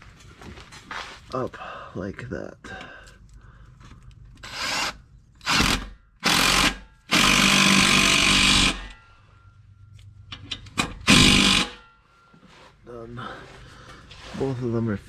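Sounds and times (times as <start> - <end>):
power drill tightening bolt: 4.4 - 9.0, 10.8 - 11.8.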